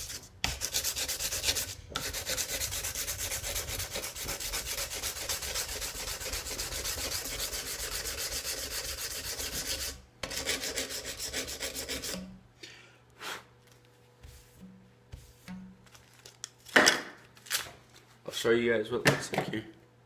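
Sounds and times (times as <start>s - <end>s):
sandpaper rubbing on knife blade: 0.0s - 12.2s.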